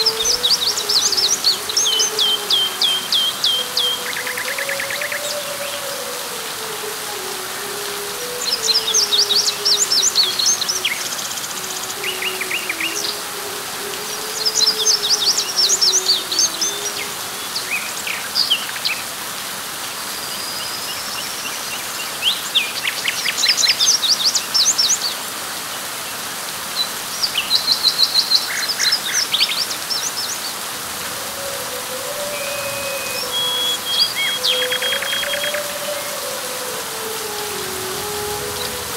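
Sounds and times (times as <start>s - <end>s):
birds chirping and trilling: 0.0s - 19.0s, 26.8s - 38.9s
steady rain hiss: 0.0s - 38.9s.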